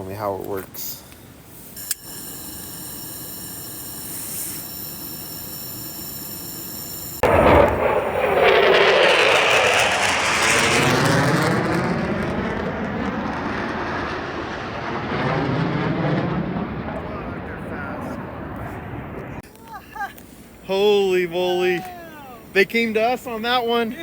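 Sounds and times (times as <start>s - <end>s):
military jet roaring past: 7.2s - 19.4s.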